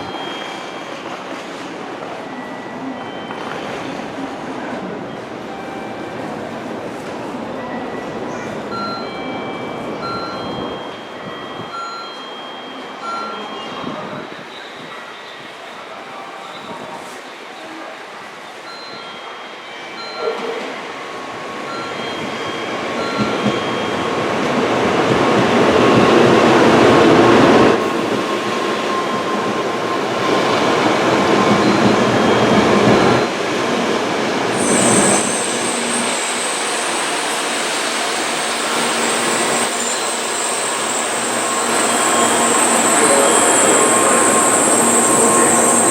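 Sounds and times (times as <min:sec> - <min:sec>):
train running: 0:18.6 - 0:45.9
high-pitched squeal: 0:34.5 - 0:45.9.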